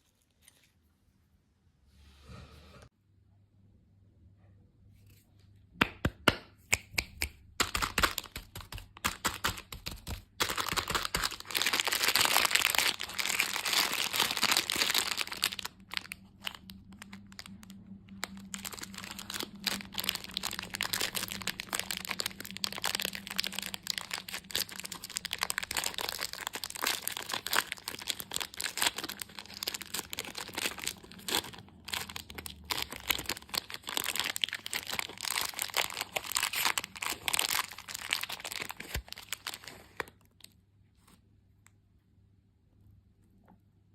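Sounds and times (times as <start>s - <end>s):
candy wrappers crinkling: 7.6s - 40.6s.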